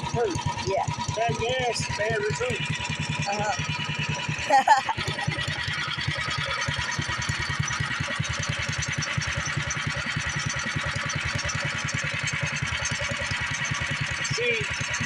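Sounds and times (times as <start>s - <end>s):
small gas engine idling: 0.0s - 15.0s.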